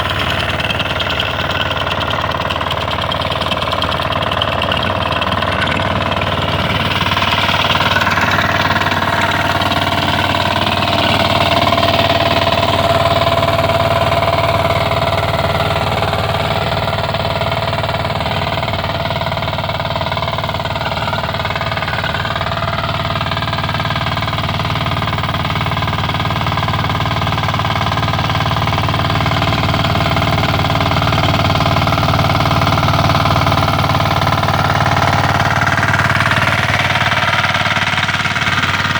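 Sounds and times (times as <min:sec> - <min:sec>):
rotary tiller rattling through soil: 0:00.0 - 0:38.9
tractor engine running under load: 0:00.0 - 0:38.9.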